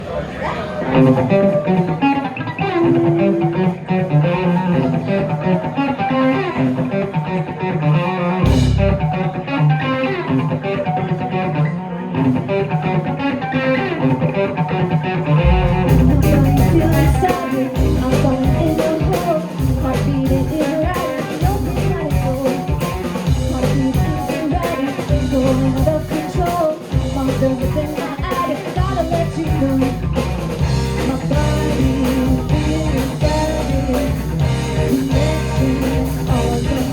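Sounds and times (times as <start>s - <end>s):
drums: 0.0s - 36.9s
guitar: 0.0s - 36.9s
bass: 8.4s - 9.2s, 15.4s - 36.9s.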